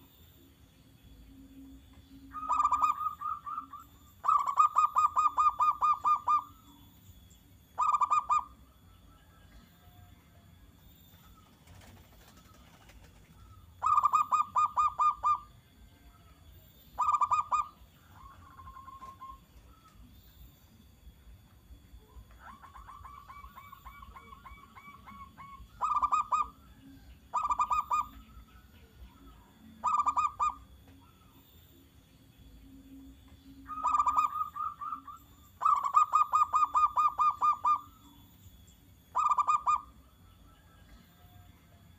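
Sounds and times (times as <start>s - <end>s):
dove cooing: 2.2s - 6.7s, 7.8s - 8.6s, 11.3s - 15.5s, 17.0s - 20.0s, 22.4s - 28.4s, 29.2s - 31.2s, 33.6s - 38.0s, 39.2s - 40.0s.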